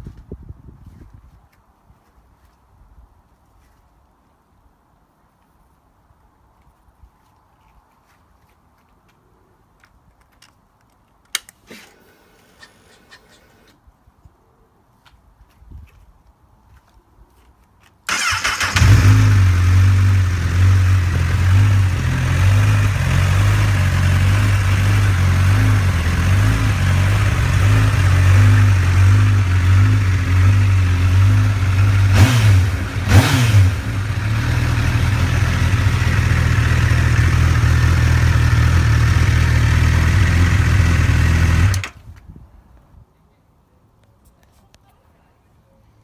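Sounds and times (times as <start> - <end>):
motorcycle engine idling: 18.1 - 32.2, 33.8 - 41.8
motorcycle engine revving: 18.1 - 41.9.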